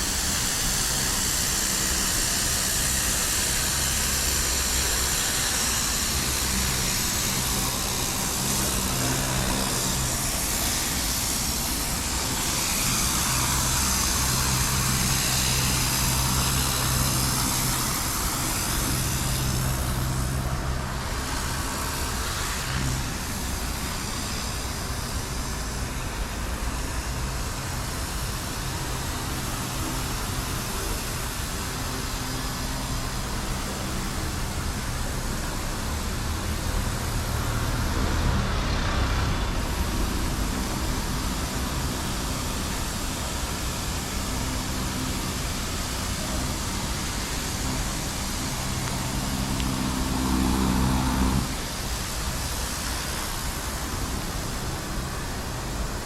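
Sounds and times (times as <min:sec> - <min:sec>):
road noise: 0:00.0 - 0:56.0
vehicle engine hum: 0:00.0 - 0:56.0.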